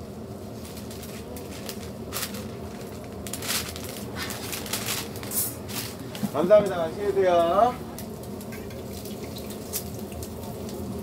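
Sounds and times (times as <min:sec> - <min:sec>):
takeaway bag rustling: 0:00.6 - 0:06.5
pancakes sizzling in oil: 0:08.0 - 0:11.0.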